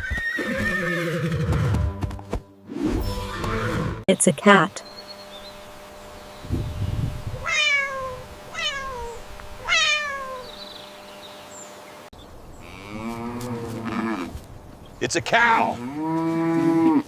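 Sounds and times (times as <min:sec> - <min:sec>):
cat meowing: 0:07.4 - 0:10.6
cow mooing low: 0:12.6 - 0:14.4, 0:15.7 - 0:17.0.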